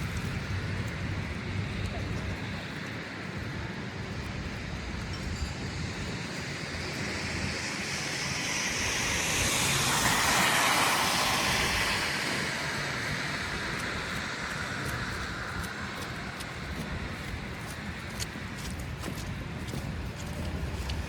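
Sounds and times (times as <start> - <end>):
tyre hiss on snow: 6.1 - 21.0.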